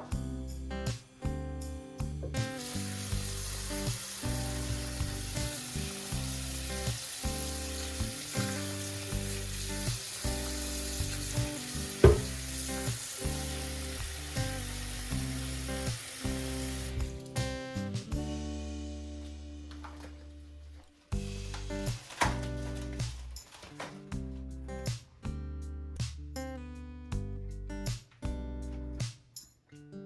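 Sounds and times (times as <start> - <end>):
food sizzling in a frying pan: 2.4 - 17.3
sharp knock: 12.0 - 12.4.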